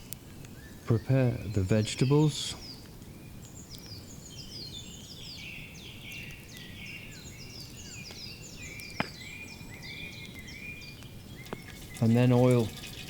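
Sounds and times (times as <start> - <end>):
birds singing: 0.0 - 13.0
low background noise: 0.0 - 13.0.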